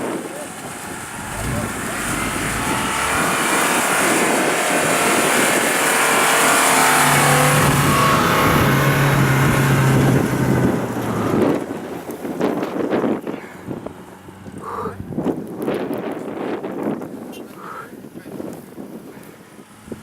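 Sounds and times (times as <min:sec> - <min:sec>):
off-road engine revving hard: 0:00.0 - 0:15.3
loud rushing noise: 0:00.6 - 0:11.6.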